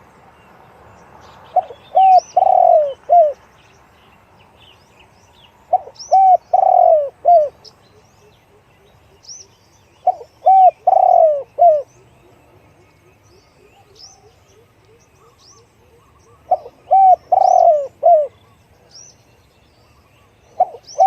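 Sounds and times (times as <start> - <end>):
small birds chirping: 0.0 - 21.0
dove cooing: 1.6 - 3.4, 5.7 - 7.6, 10.0 - 18.6, 20.5 - 21.0.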